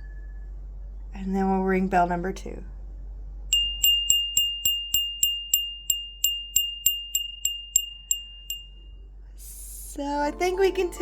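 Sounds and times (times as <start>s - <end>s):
handbell ringing: 3.5s - 8.7s.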